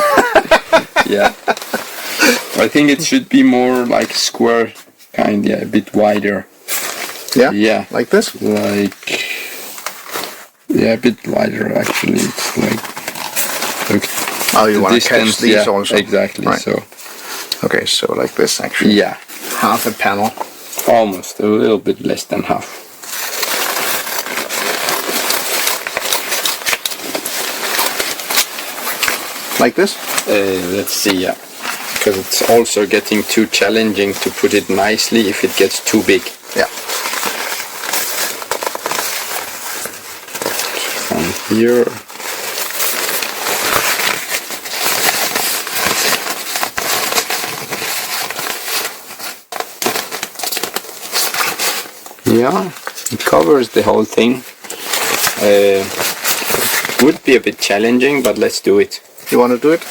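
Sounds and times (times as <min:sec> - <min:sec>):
nylon fabric rustling: 0:01.0 - 0:04.2, 0:11.8 - 0:17.5, 0:23.0 - 0:59.9.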